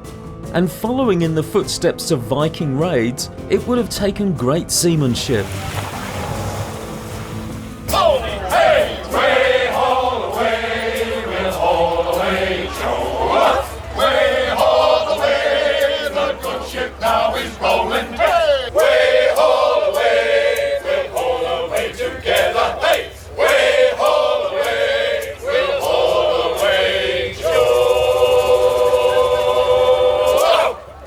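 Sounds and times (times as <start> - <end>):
choir chanting held notes: 7.8 - 31.0.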